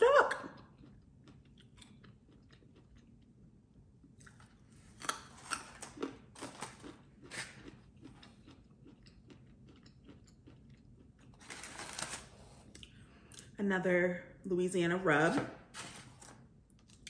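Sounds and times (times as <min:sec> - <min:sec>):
crunching and chewing carrot: 0:00.3 - 0:13.6.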